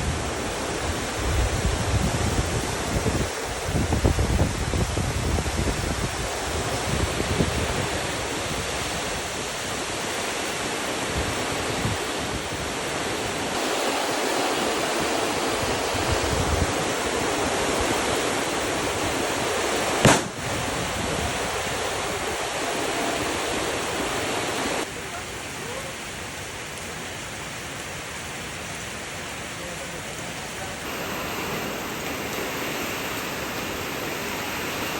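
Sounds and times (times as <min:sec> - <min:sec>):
steady rain: 0:00.0 - 0:34.9
sharp click: 0:20.0 - 0:20.4.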